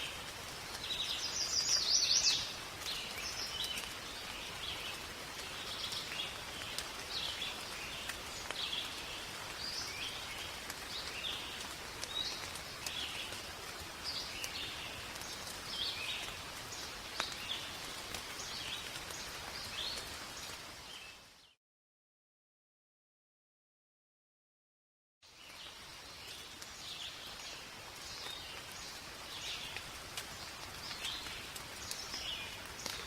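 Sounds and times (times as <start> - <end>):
rain hiss in forest: 0.0 - 21.6, 25.2 - 33.0
raindrop ticks: 0.1 - 20.6, 26.2 - 33.0
birds chirping: 0.8 - 13.4.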